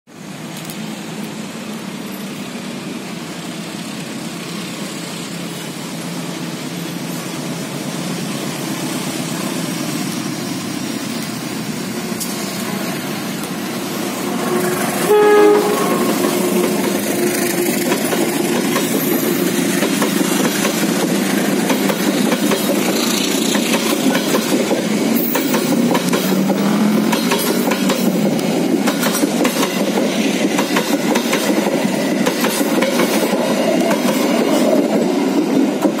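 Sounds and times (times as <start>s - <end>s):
locomotive engine rumbling: 0.2s - 36.0s
wheels clacking over rail joints: 3.8s - 36.0s
train horn blast: 14.2s - 17.6s.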